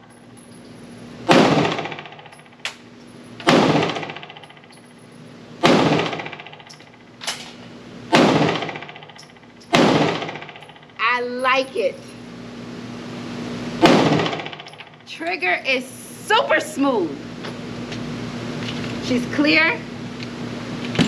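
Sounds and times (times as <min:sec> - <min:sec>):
pistol shots echoing indoors: 0:01.3 - 0:02.4, 0:03.4 - 0:04.6, 0:05.6 - 0:06.8, 0:08.1 - 0:10.6, 0:13.8 - 0:14.8.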